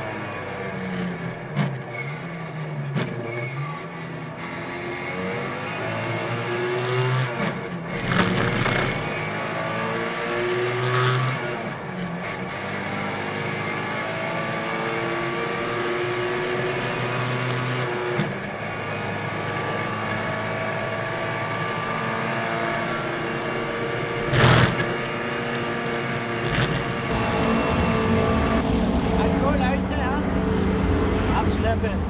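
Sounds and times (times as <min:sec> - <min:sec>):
race car engine running: 0:21.6 - 0:32.0
loud rush of noise: 0:26.5 - 0:32.0.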